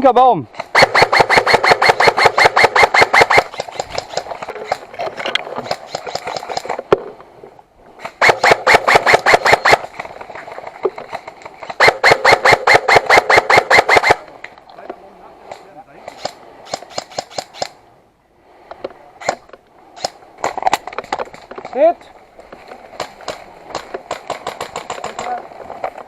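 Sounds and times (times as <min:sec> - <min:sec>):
airsoft gun firing bursts: 0:00.6 - 0:04.8, 0:08.2 - 0:09.9, 0:11.6 - 0:14.2, 0:16.1 - 0:17.8, 0:23.0 - 0:25.3.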